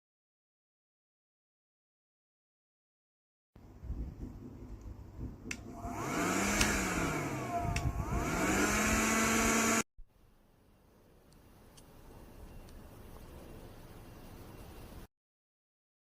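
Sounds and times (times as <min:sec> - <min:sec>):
vacuum cleaner motor whining: 0:05.6 - 0:09.8.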